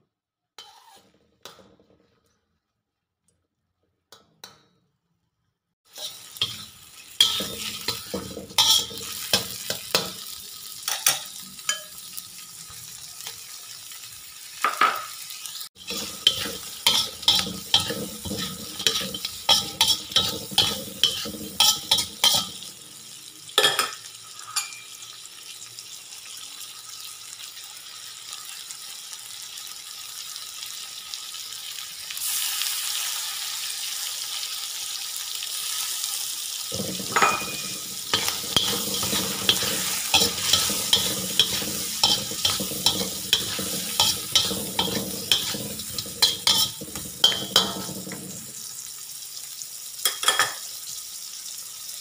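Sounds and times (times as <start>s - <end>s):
metal spoon scraping a wok: 0.6s - 1.1s, 5.9s - 10.2s, 15.8s - 22.7s, 36.8s - 48.3s
prawns sizzling in butter: 5.8s - 52.0s.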